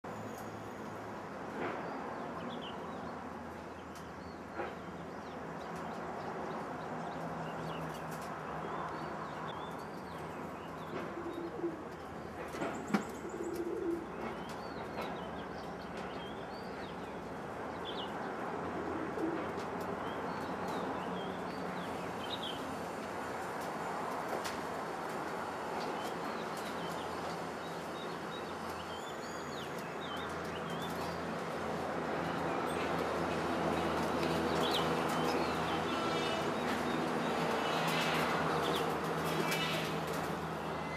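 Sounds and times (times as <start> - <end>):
pigeons cooing: 11.0 - 12.0, 13.0 - 14.4.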